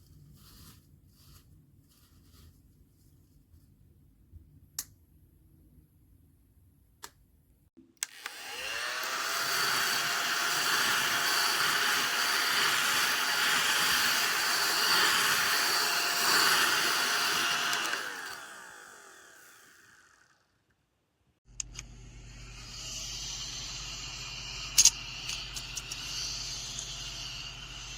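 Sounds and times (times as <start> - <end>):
small vacuum motor whining: 8.0 - 20.6, 22.2 - 27.9.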